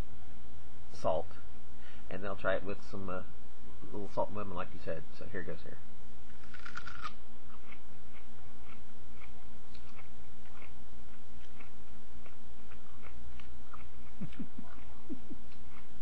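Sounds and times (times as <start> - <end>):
crisp crunches of chewing: 6.3 - 16.0.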